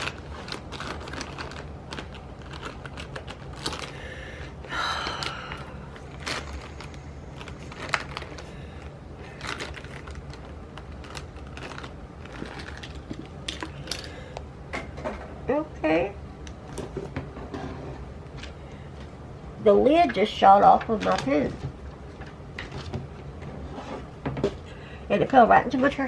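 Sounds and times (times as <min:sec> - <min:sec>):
pens and paper clicking: 0:00.0 - 0:04.1, 0:05.1 - 0:14.2, 0:20.8 - 0:21.5.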